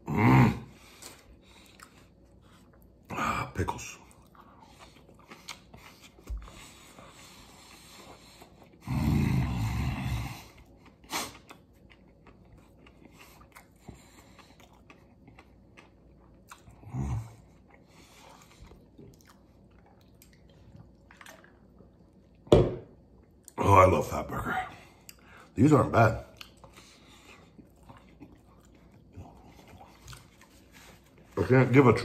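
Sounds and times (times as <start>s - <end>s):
chewing with wet mouth clicks: 1.0s - 3.0s, 4.0s - 6.6s, 10.5s - 22.5s, 25.0s - 25.5s, 26.2s - 31.3s.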